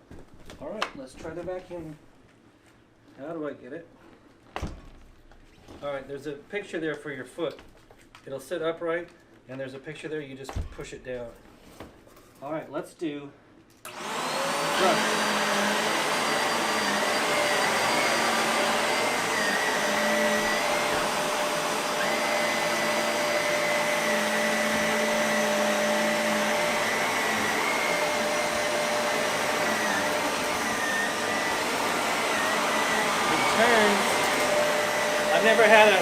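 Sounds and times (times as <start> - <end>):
vacuum cleaner running: 13.9 - 36.0.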